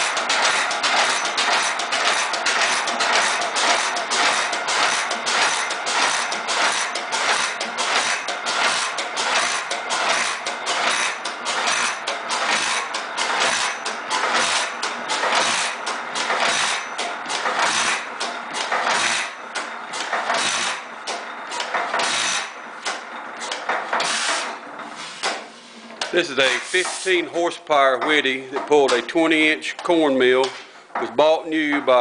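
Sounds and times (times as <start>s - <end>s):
stationary engine rhythmic firing: 0.0s - 24.4s.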